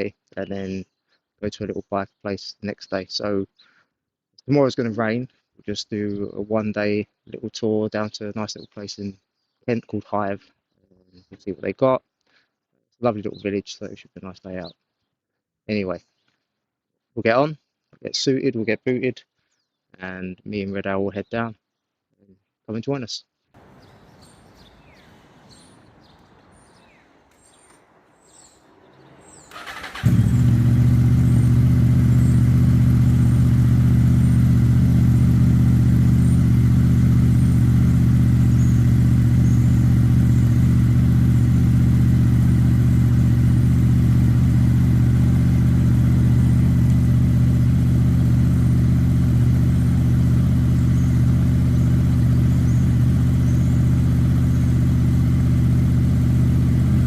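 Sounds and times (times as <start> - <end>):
faint bird chirps: 23.6 - 30.5, 38.4 - 40.6, 50.8 - 51.3, 52.2 - 54.8
motorcycle engine idling: 23.6 - 57.0
motorcycle engine starting: 23.6 - 57.0.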